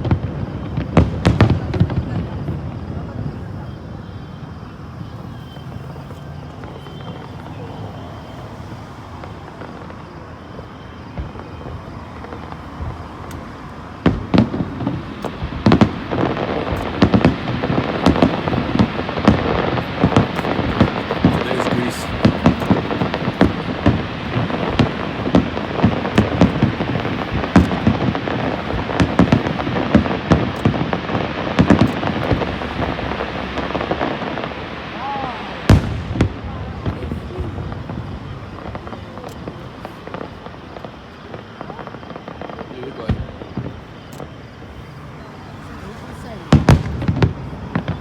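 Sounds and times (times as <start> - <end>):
fireworks bangs and pops: 0.0 - 48.0
outdoor background noise: 0.0 - 48.0
fireworks shells bursting: 13.2 - 34.2.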